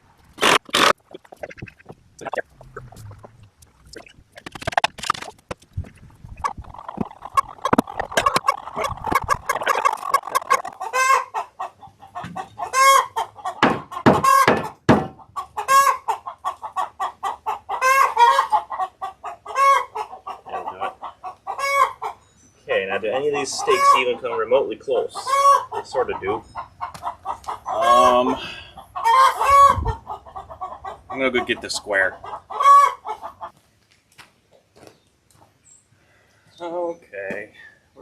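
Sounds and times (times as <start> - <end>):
chickens clucking and cackling: 0.4 - 33.7
sharp knocks: 13.6 - 15.2.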